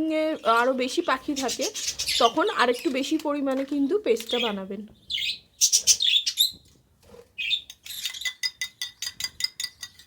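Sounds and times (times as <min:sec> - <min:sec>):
lovebird chirps: 0:04.2 - 0:06.7, 0:07.4 - 0:09.2
spoon clinking in cup: 0:07.7 - 0:10.0.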